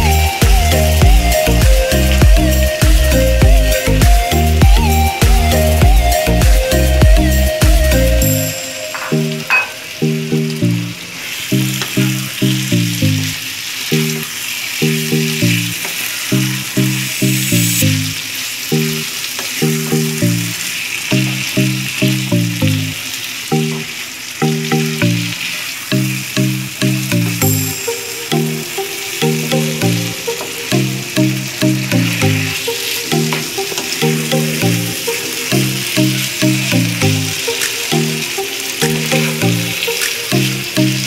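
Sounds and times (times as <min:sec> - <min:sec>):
melodic background music: 0:00.0 - 0:41.0
meat sizzling in a pan: 0:08.4 - 0:41.0.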